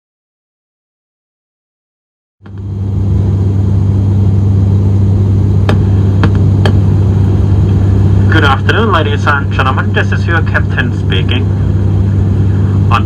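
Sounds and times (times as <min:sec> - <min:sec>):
propeller drone in aircraft cabin: 0:02.4 - 0:13.0.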